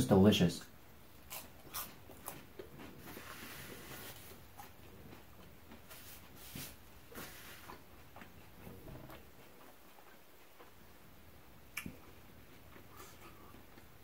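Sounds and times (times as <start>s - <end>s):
close-up chewing: 1.1s - 14.0s.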